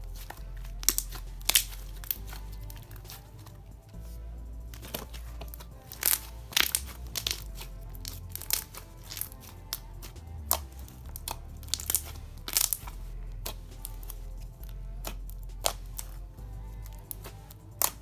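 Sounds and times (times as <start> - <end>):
faint background music: 0.0 - 18.0
slime squished by hand: 4.8 - 16.2.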